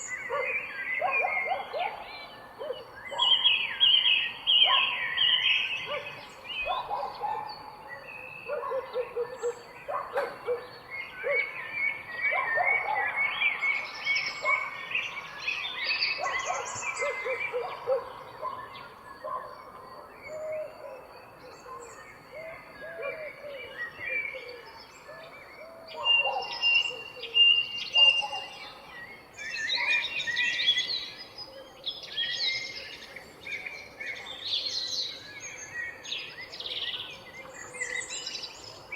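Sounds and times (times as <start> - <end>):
birds singing and calling: 0.0 - 38.9.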